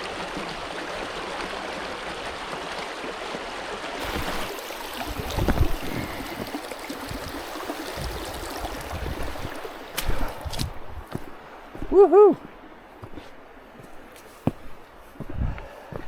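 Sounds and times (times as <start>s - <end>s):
river rushing over rocks: 0.0s - 12.6s.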